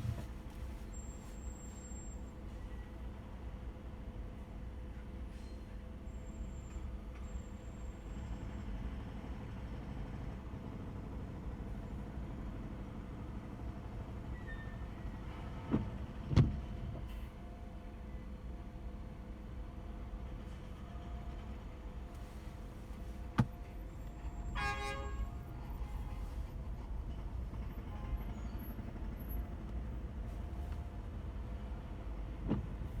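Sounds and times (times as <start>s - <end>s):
car driving rumble: 0.0s - 1.3s
car engine and road noise: 0.0s - 4.7s, 19.3s - 33.0s
car horn honk: 24.4s - 26.2s.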